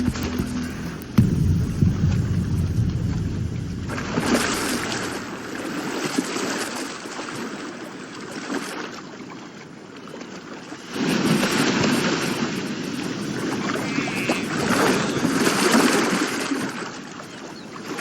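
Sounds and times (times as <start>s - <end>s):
low rumble: 0.0s - 6.1s
sea water churning and splashing: 1.0s - 18.0s.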